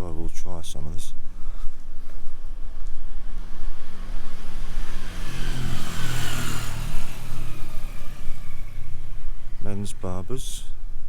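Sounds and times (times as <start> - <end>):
vehicle driving past: 2.5 - 10.8.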